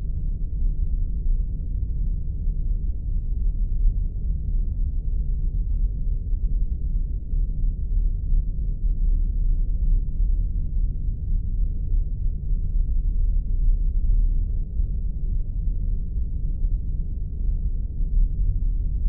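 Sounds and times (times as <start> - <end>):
spaceship engine deep rumble: 0.0 - 19.0.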